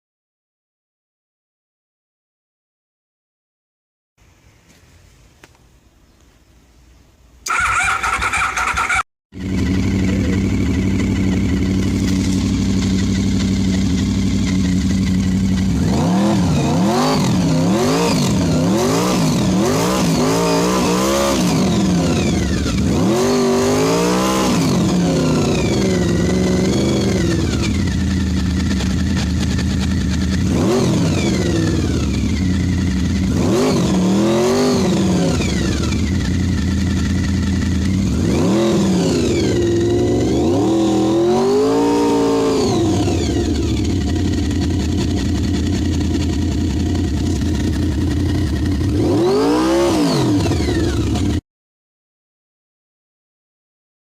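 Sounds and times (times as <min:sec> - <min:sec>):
motorcycle engine idling and revving: 0:07.4 - 0:51.4
starter motor whirr: 0:07.5 - 0:09.0.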